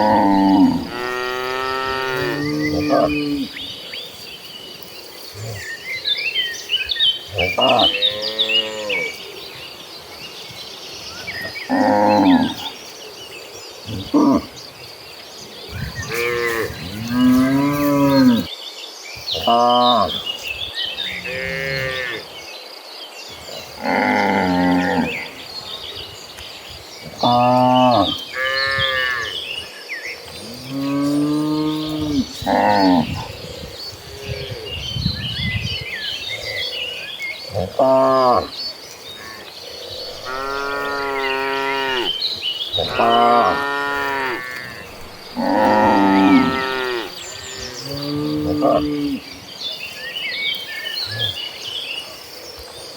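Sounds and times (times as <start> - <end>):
cattle mooing: 0.0 - 3.5, 39.2 - 42.2, 42.8 - 49.2
small birds chirping faintly: 0.0 - 52.9.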